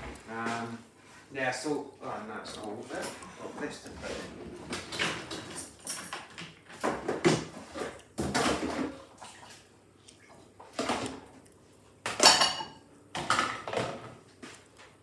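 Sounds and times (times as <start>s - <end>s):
dishes and cutlery clattering: 4.7s - 9.0s, 12.1s - 14.1s.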